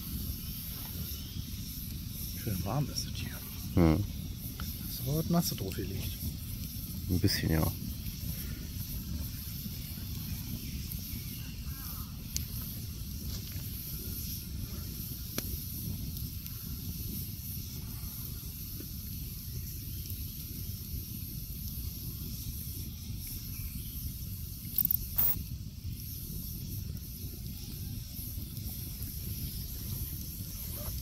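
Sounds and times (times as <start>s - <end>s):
campfire hissing: 0.0s - 31.0s
fire cracks: 0.0s - 31.0s.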